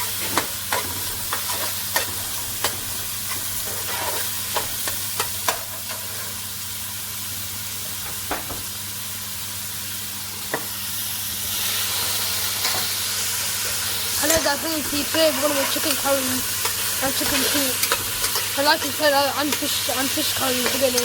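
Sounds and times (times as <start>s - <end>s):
utensil scraping a pan: 0.0s - 5.0s
food sizzling in a pan: 0.0s - 21.0s.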